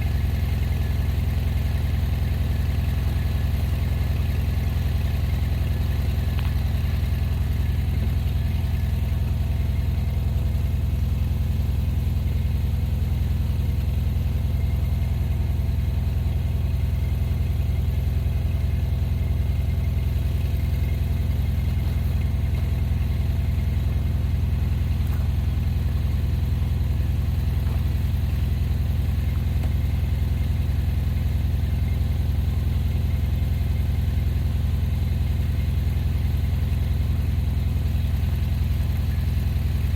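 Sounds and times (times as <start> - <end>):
vehicle engine running steadily: 0.0 - 39.9.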